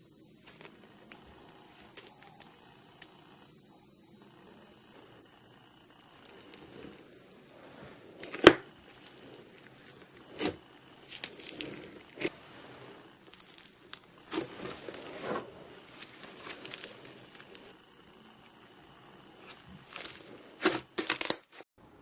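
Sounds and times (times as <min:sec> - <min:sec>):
slime crackling and popping: 0:08.2 - 0:12.4, 0:13.1 - 0:21.6.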